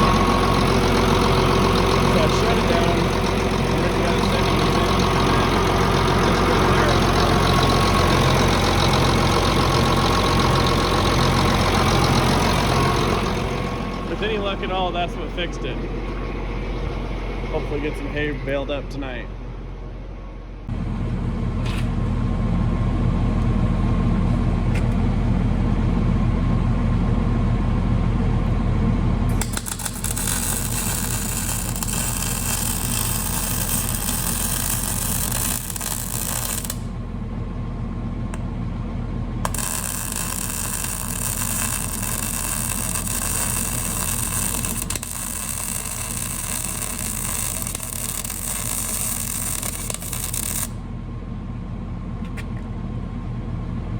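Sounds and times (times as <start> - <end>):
engine humming: 0.0 - 53.9
arc welding crackling hiss: 29.3 - 36.9, 39.5 - 50.8.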